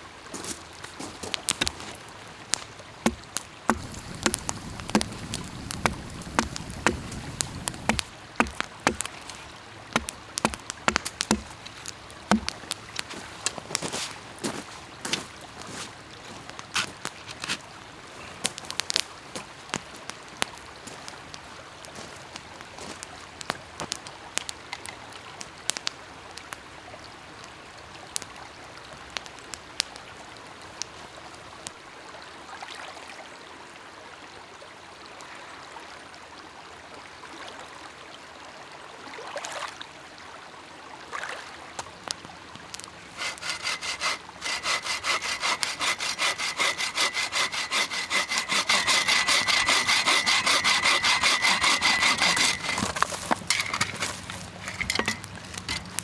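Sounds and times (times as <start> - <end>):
saw cutting wood: 3.1 - 9.1, 10.0 - 11.6, 12.3 - 12.5, 43.1 - 56.0.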